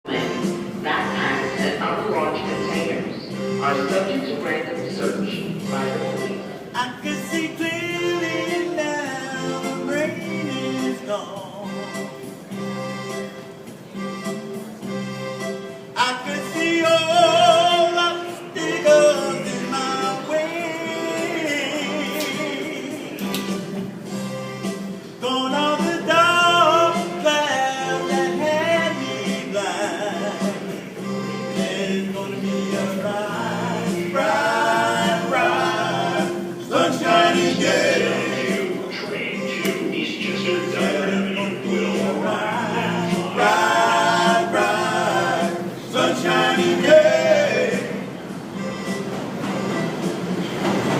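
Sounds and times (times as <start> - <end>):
low repeating backing music: 0.1 - 50.9
man singing: 5.6 - 12.0, 16.0 - 23.4, 25.2 - 48.0.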